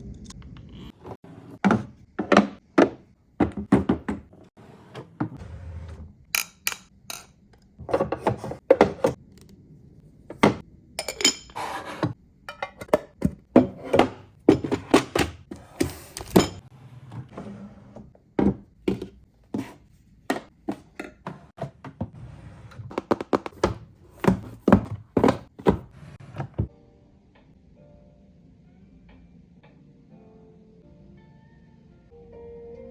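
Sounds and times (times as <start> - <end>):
hard objects thunking on furniture: 22.9 - 26.7.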